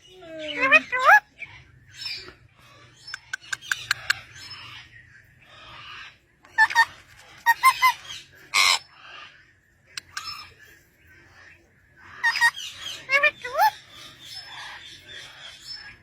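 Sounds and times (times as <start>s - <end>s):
parrot clicks and warbling calls: 3.0s - 4.3s, 9.9s - 10.5s
parrot harsh squawk: 5.9s - 9.3s, 12.2s - 13.8s.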